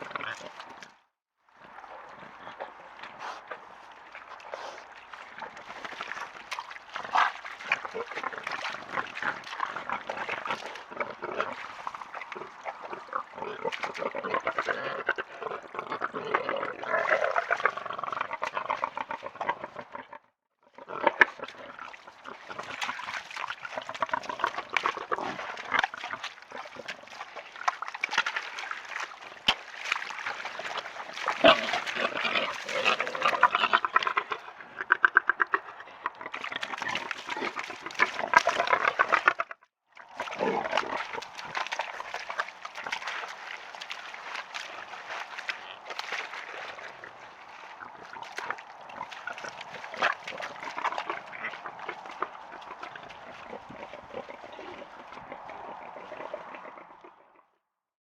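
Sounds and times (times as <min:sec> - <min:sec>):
splashing in mud: 0:01.6 - 0:19.9, 0:20.8 - 0:57.0
wild boars grunting: 0:30.0 - 0:39.5, 0:40.2 - 0:57.2.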